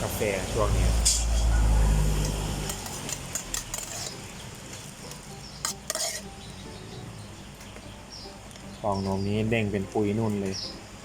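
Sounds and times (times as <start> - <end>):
utensils and cups clattering: 2.6 - 4.9, 5.6 - 6.4.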